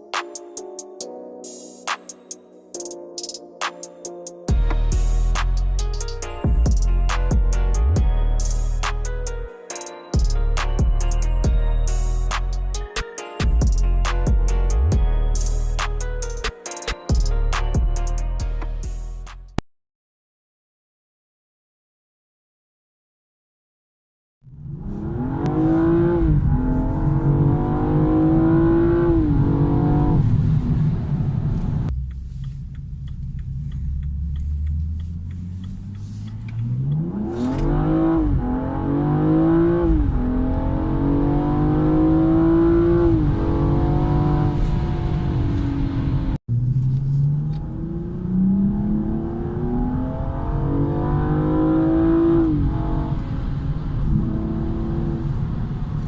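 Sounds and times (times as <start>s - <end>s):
car engine accelerating hard: 24.5s - 56.0s
engine drone: 24.5s - 56.0s.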